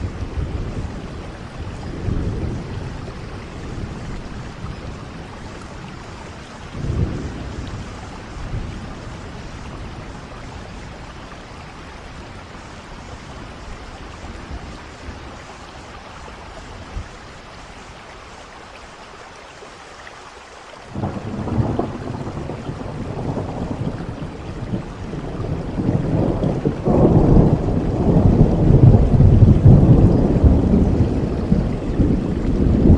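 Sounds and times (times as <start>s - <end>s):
thunder rumble: 0.0s - 15.5s, 20.9s - 32.9s
steady rain falling: 0.0s - 32.9s.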